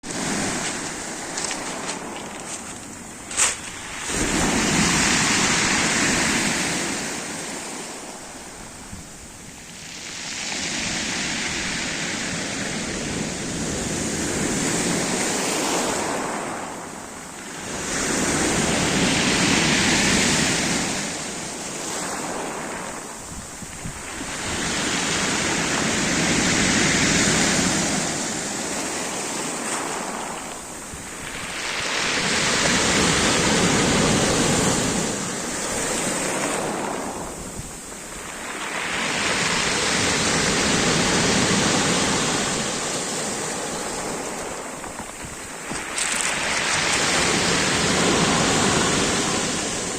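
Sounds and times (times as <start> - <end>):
surf breaking on shore: 0.0 - 16.9, 17.7 - 49.9.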